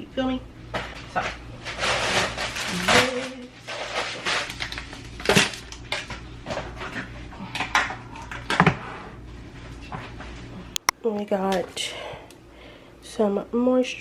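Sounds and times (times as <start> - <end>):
packaging rustling: 1.7 - 5.8.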